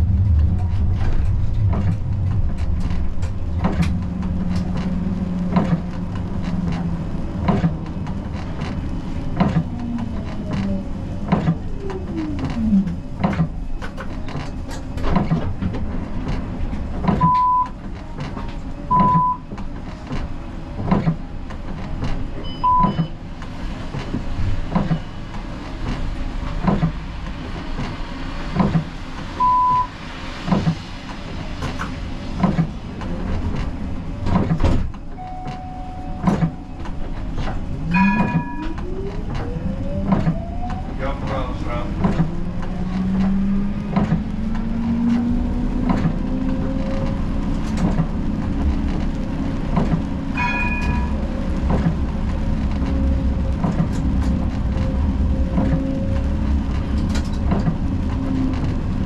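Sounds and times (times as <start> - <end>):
clicks with low knocks: 0.0 - 29.9
tram electric drive whine: 0.0 - 59.0
short high beeps: 35.2 - 36.4.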